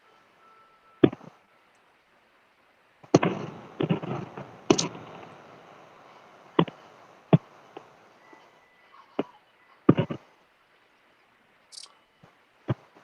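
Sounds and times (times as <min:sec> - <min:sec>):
distant fireworks popping: 0:01.0 - 0:01.4, 0:03.0 - 0:08.6, 0:09.9 - 0:10.2, 0:11.8 - 0:13.0.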